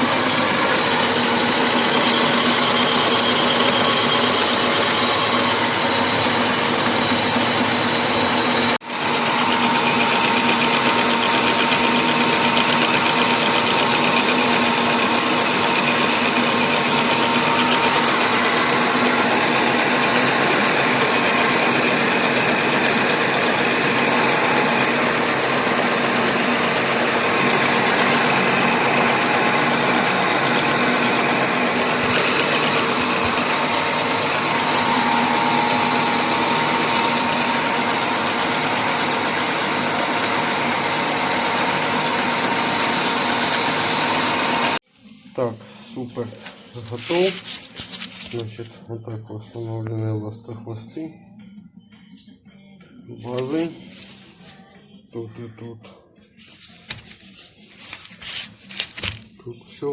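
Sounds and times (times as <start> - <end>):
machine tool hum: 0.0 - 44.8.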